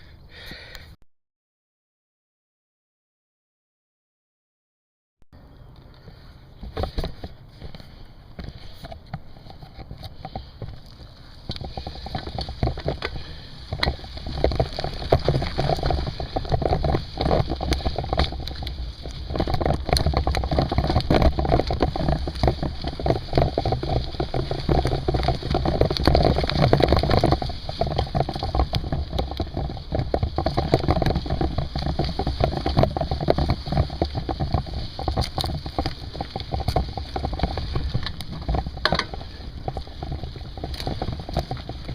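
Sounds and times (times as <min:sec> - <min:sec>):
mountain bike rolling on trail: 0:00.3 - 0:00.8, 0:05.4 - 0:41.9
rattles and knocks: 0:19.3 - 0:41.9.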